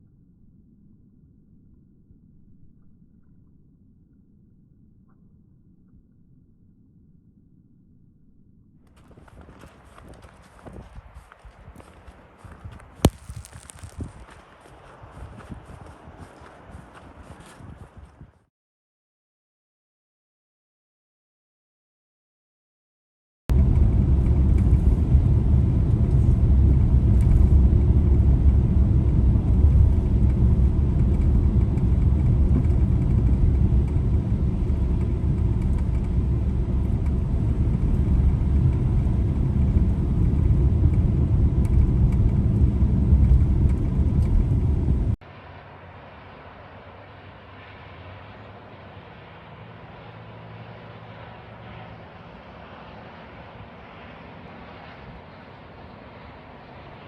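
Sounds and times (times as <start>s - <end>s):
muffled hum: 0.0s - 18.3s, 23.5s - 57.0s
car tyres and engine rumbling: 8.9s - 18.2s, 23.5s - 55.3s.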